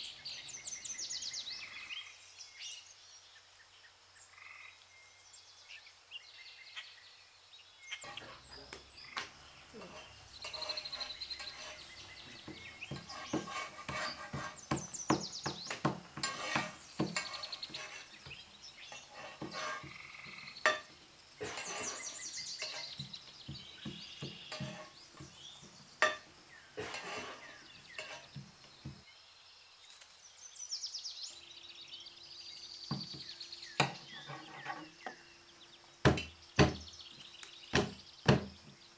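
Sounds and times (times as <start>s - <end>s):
birds chirping: 0.0s - 38.9s
spatula scraping on griddle: 8.0s - 8.6s, 9.7s - 29.0s, 33.8s - 35.2s.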